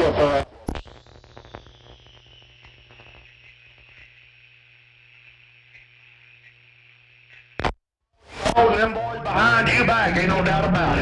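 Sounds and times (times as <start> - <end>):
steady low hum: 0.0 - 7.8
radio crackles: 0.0 - 8.6
cb radio static: 0.0 - 11.0.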